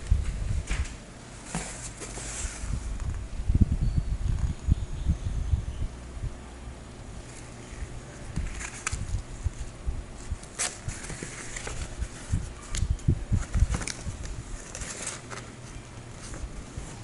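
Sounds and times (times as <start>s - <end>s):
packaging crinkling and rustling: 8.3s - 9.7s, 10.4s - 17.0s.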